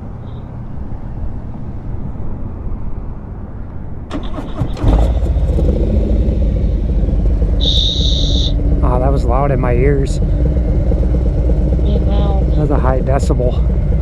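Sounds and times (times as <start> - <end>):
motorcycle engine starting and idling: 4.1 - 14.0
steady low rumble: 4.9 - 14.0.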